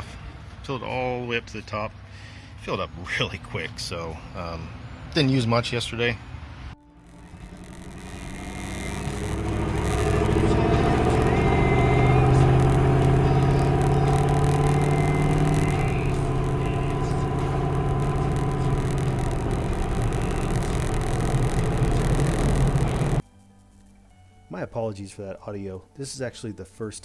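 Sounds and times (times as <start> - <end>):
diesel engine pulling away: 6.5 - 23.2
alternator noise: 6.5 - 24.9.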